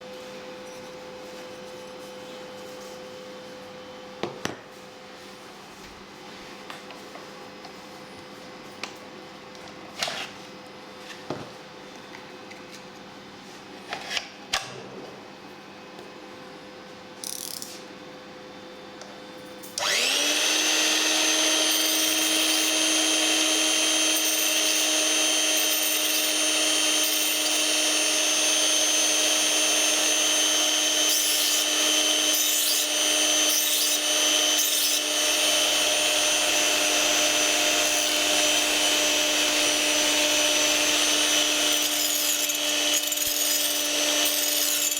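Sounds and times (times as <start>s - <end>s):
sharpener motor whining: 19.8s - 44.9s.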